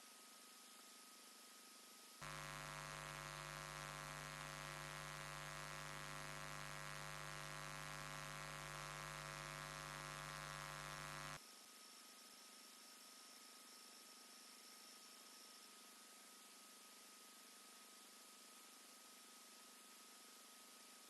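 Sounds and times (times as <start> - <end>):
electrical hum: 2.2 - 11.4.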